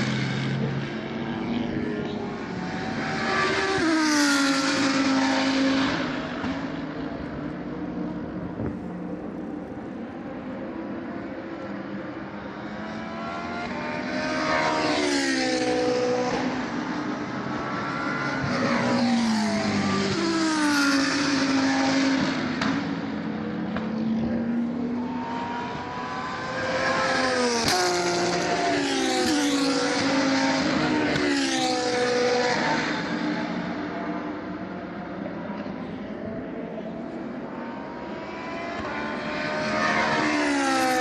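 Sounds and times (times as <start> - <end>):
race cars passing at speed: 0.0 - 41.0.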